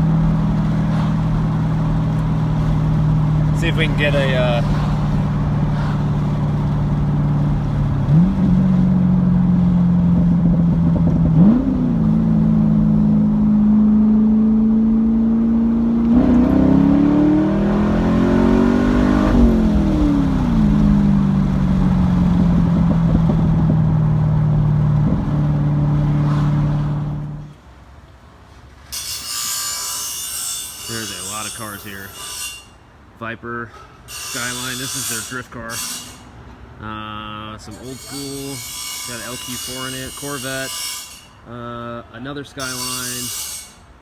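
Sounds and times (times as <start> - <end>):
car engine deep growl: 0.0 - 27.6.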